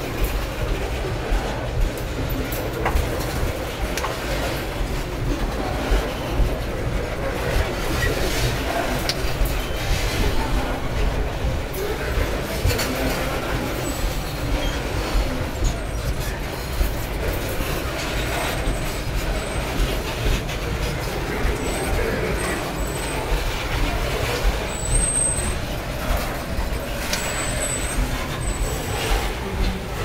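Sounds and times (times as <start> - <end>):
freight train wheels clattering: 0.0 - 30.0.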